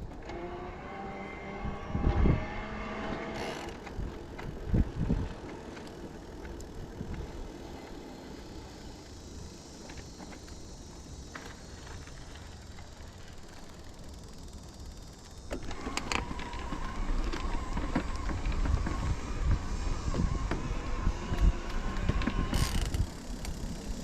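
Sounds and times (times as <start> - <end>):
motor whine: 0.0 - 24.0
wind noise: 1.4 - 7.6, 15.6 - 24.0.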